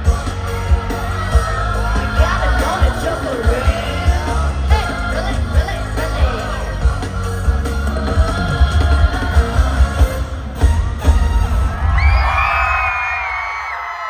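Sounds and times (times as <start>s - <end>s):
crowd yelling: 0.0s - 8.5s, 10.4s - 14.0s
live pop music over sound system: 0.0s - 14.0s.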